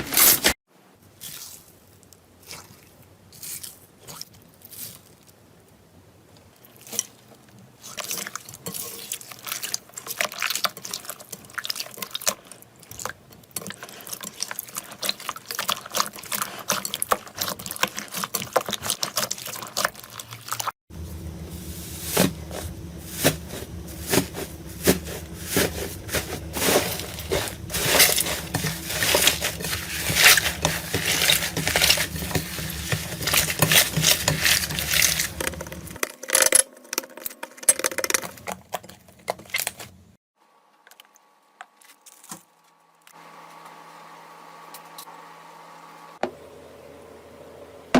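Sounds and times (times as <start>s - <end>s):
slime squishing: 6.6s - 20.7s, 21.8s - 36.0s
low hum: 20.9s - 36.0s.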